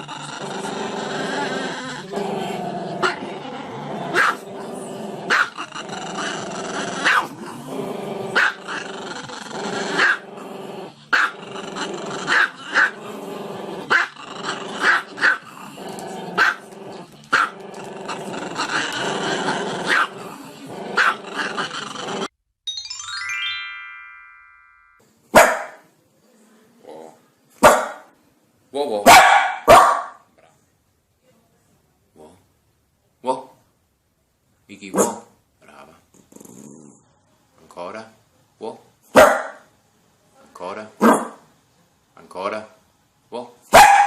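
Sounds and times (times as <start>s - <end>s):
dog growling: 0.0s - 22.3s, 35.1s - 37.0s
dog barking: 4.1s - 4.4s, 5.3s - 5.5s, 7.0s - 7.3s, 16.4s - 16.6s, 19.9s - 20.1s, 21.0s - 21.2s, 25.4s - 25.8s, 27.6s - 28.1s, 29.0s - 30.3s, 34.9s - 35.3s, 39.1s - 39.6s, 41.0s - 41.4s, 43.7s - 44.0s.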